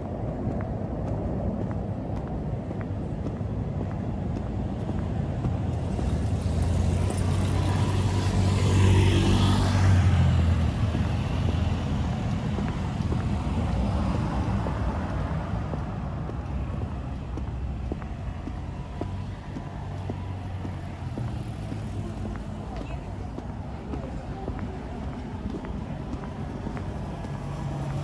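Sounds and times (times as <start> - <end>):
car driving past: 5.4 - 22.7.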